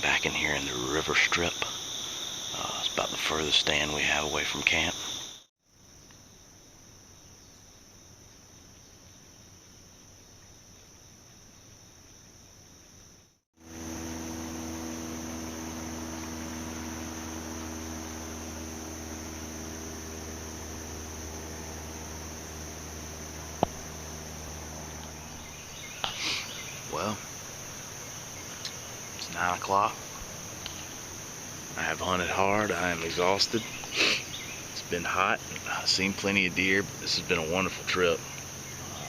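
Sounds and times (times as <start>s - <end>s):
insect chorus drone: 0.0s - 39.0s
low hum: 13.6s - 39.0s.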